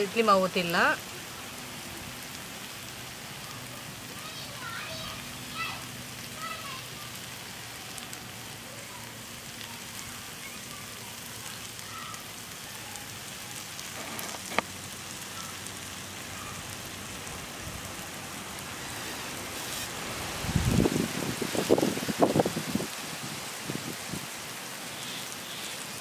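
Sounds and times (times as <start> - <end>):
food sizzling on a hot griddle: 0.0 - 26.0.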